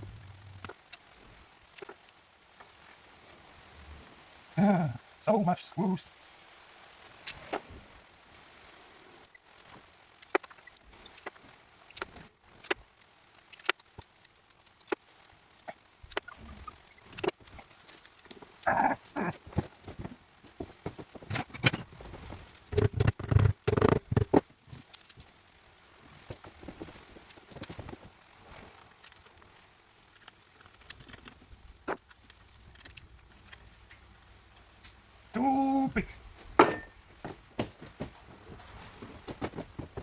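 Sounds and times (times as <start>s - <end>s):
metal tools and screws clinking: 36.6s - 37.0s, 38.1s - 39.3s.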